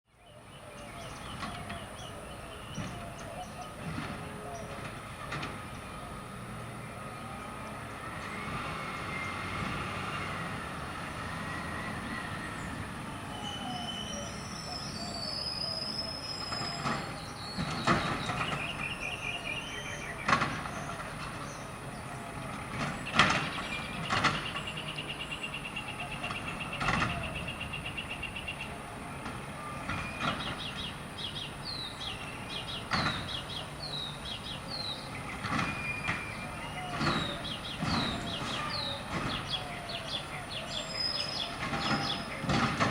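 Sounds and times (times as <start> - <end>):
garbage truck engine running: 16.2 - 42.9
loud metallic bangs: 34.8 - 40.2.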